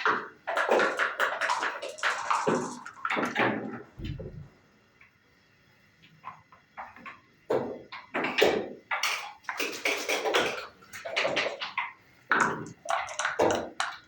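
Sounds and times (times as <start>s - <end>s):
dice and checkers clattering: 0.6s - 3.4s.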